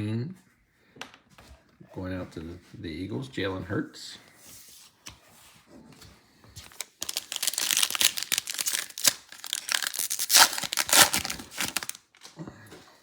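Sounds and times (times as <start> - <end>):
foil wrapper tearing and crinkling: 6.7 - 12.2.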